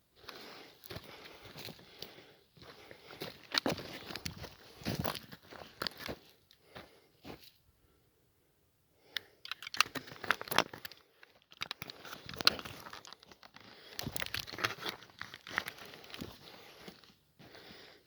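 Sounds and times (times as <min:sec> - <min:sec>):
rustling and crackling: 0:09.5 - 0:17.1.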